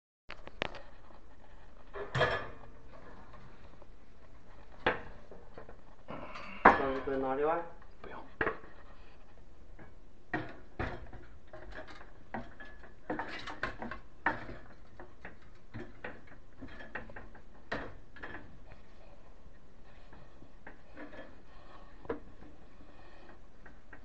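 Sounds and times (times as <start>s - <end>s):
metal hardware clicks and knocks: 10.3s - 18.6s.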